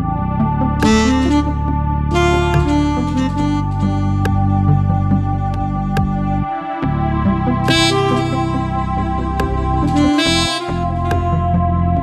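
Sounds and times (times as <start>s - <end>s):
synthesizer chords: 0.0s - 12.0s
bright high synth tone: 6.5s - 10.9s.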